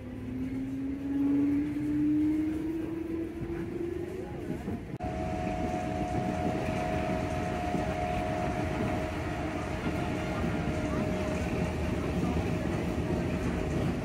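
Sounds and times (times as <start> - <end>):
train carriage rumble: 0.0 - 14.0
high steady whine: 5.0 - 12.2.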